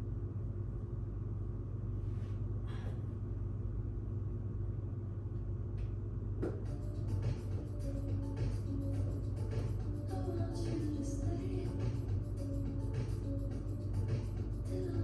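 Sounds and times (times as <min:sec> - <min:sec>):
pop backing track bass: 0:06.5 - 0:15.0.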